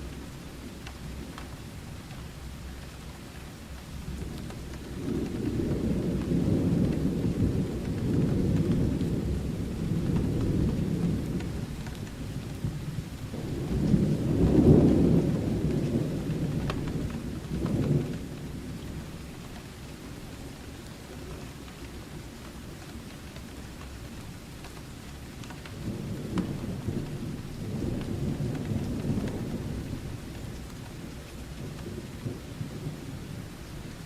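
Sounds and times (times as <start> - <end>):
steady rain: 0.0 - 34.0
thunder rumbling: 4.1 - 19.9, 25.6 - 34.0.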